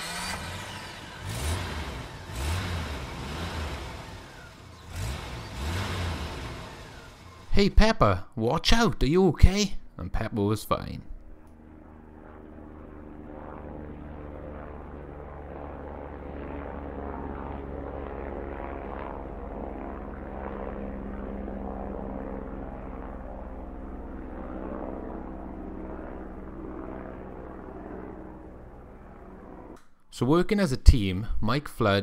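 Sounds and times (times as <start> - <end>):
toy helicopter rotor whirring: 0.0 - 1.2.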